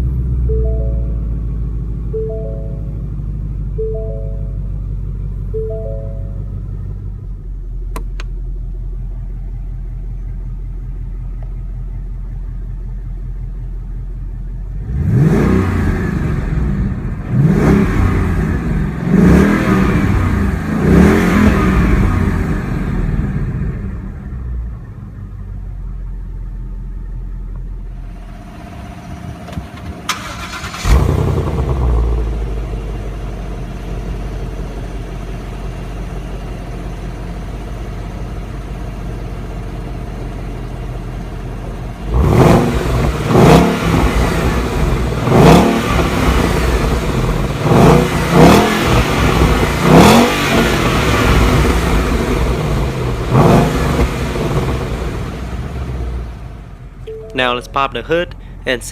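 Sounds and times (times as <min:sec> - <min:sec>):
car engine idling: 0:00.0 - 0:58.9
car engine revving: 0:14.6 - 0:25.6, 0:27.9 - 0:33.7, 0:41.8 - 0:56.9.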